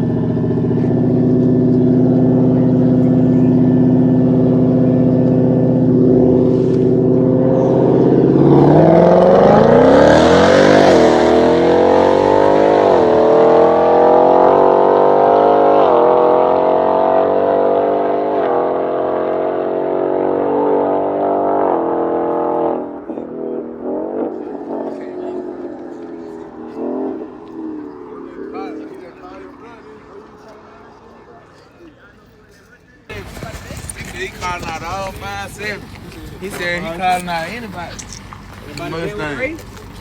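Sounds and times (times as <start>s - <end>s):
car engine revving and accelerating: 0.0s - 31.6s.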